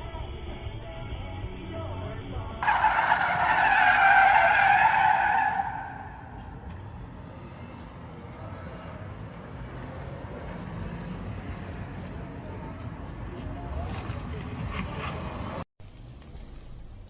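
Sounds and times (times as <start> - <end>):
car tyres squealing: 2.6 - 7.8.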